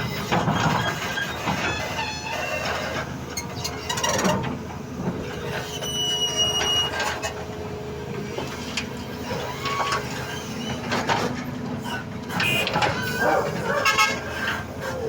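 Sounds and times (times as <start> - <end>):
excavator engine whine: 0.0 - 15.0.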